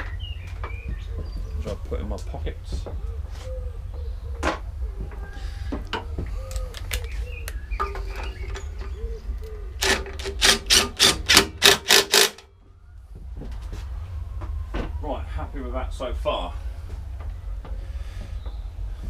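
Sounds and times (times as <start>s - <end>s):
ratchet spanner clicking: 9.8s - 12.4s.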